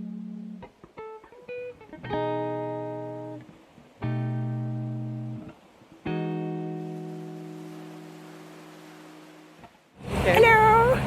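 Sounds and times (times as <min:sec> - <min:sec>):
guitar chords ringing: 0:00.0 - 0:09.7.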